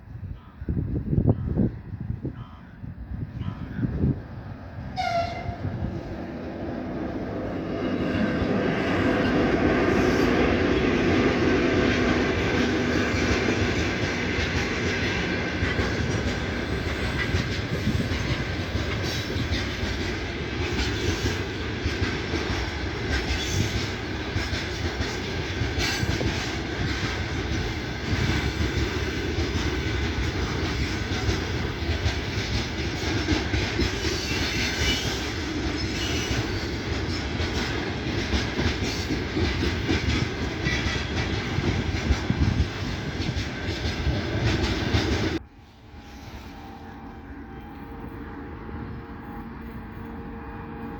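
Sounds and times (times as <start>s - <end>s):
train rumbling past: 0.0s - 50.9s
train wheels clickety-clack: 7.3s - 45.4s.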